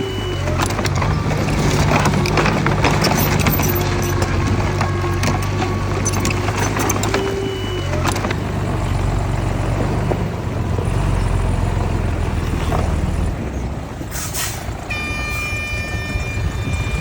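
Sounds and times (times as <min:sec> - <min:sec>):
diesel engines of earthmoving machinery: 0:00.0 - 0:17.0
steady high tone: 0:14.9 - 0:17.0.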